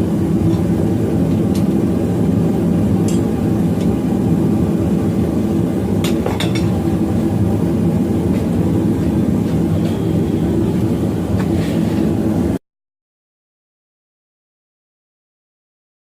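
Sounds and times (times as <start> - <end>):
loud steady low roar: 0.0 - 12.6.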